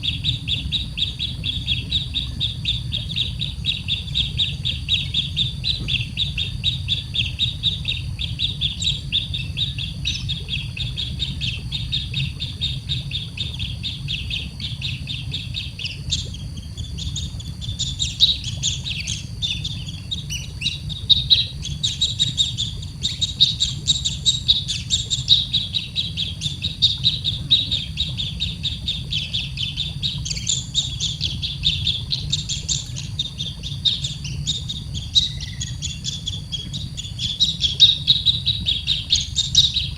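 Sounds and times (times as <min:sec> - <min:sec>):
low steady rumble: 0:00.0 - 0:39.9
baby bird cheeping: 0:15.8 - 0:39.9.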